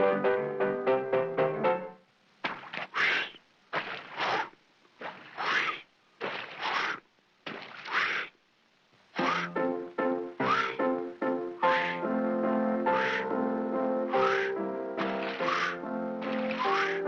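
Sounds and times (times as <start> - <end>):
rhythmic breathy hissing bursts: 9.2 - 17.0.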